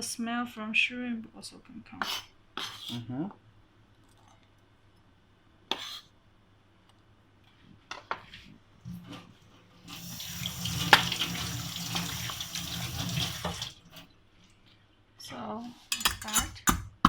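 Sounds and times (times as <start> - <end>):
tap water running into sink: 9.9 - 14.1.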